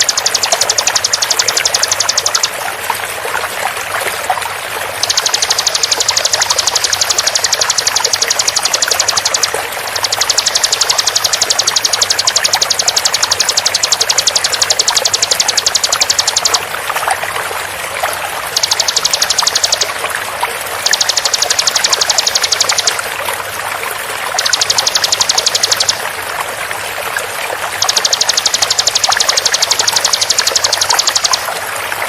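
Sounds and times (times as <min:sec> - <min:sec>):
bird calling in rapid high notes: 0:00.0 - 0:02.6, 0:05.0 - 0:16.7, 0:18.4 - 0:20.0, 0:20.8 - 0:23.0, 0:24.4 - 0:26.1, 0:27.8 - 0:31.5
running water rushing: 0:00.0 - 0:32.0.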